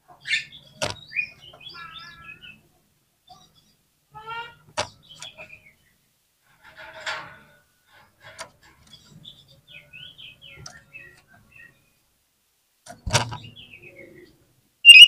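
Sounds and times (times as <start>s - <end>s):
bird singing: 0.2s - 2.6s, 13.4s - 15.0s.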